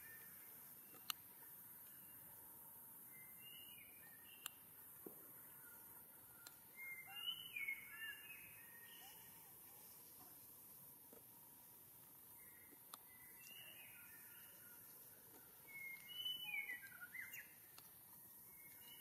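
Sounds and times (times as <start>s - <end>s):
background hiss: 0.0s - 19.0s
faint high bird chirps: 3.0s - 4.6s, 5.3s - 10.0s, 12.3s - 19.0s.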